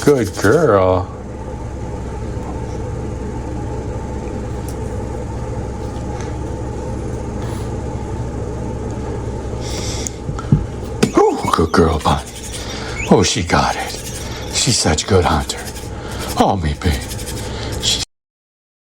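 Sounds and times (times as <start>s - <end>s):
bright scratchy noise: 0.0s - 0.6s, 11.0s - 18.0s
small toy motor buzzing: 0.0s - 0.7s, 11.0s - 18.0s.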